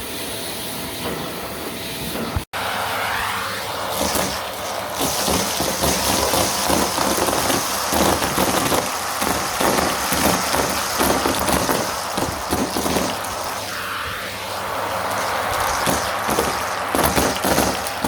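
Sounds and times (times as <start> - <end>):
vacuum cleaner on carpet: 0.0 - 18.0
ticks of sucked-up grit: 2.7 - 18.0.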